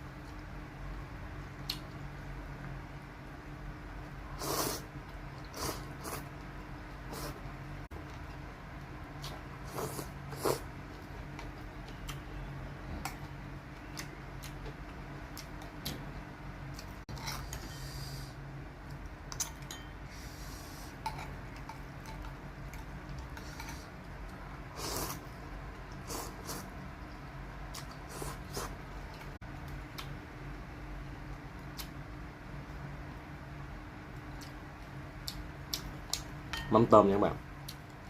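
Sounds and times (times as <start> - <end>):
slurping and chewing: 4.4 - 8.4, 9.2 - 12.2, 24.7 - 29.3.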